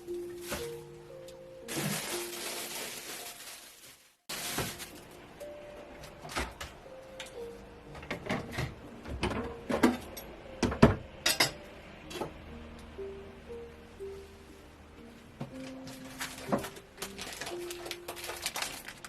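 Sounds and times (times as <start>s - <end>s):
soft background music: 0.0s - 19.0s
dishes and utensils clinking: 8.0s - 12.3s.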